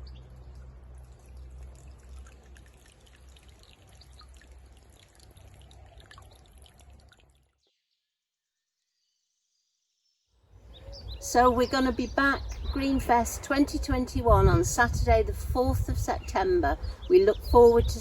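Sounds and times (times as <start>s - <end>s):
water trickling and dripping: 0.0s - 7.6s.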